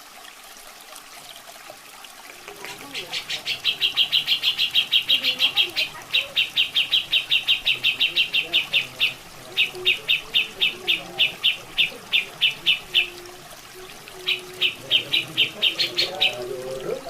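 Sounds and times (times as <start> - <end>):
running water: 0.0 - 17.0
bird calling sharp repeated notes: 2.3 - 13.3, 14.2 - 16.5.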